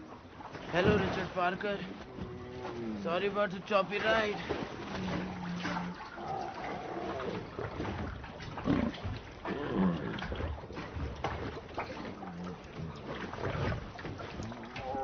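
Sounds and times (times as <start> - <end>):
tiger growling and snarling: 4.8 - 15.0.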